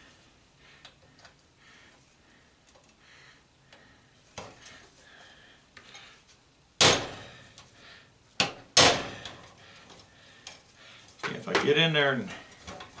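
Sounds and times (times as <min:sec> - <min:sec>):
hammer striking metal: 0:06.8 - 0:07.2, 0:08.4 - 0:09.4.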